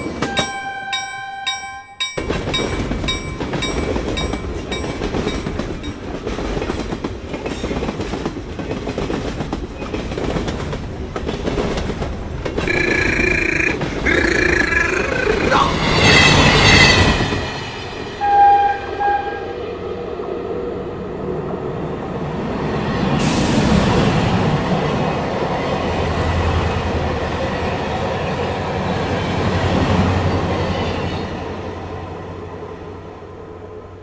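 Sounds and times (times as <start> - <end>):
train horn toots: 0.2 - 2.0, 18.2 - 19.6
passing train rumble: 2.0 - 34.0.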